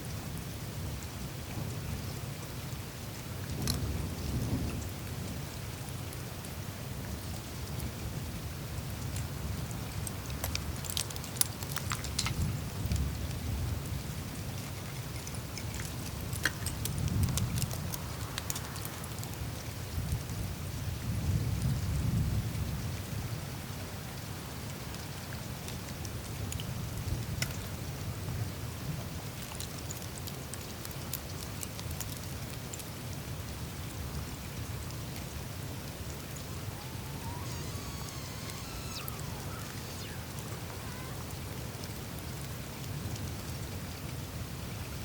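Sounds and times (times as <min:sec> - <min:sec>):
meltwater dripping and ice crackling: 0:03.1 - 0:21.7, 0:23.6 - 0:45.0.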